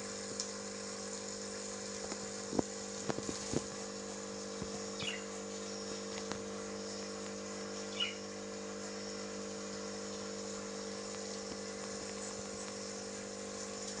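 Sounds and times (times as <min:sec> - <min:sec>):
steady low hum: 0:00.0 - 0:14.0
cockatiel chirp: 0:05.0 - 0:05.2, 0:07.9 - 0:08.2.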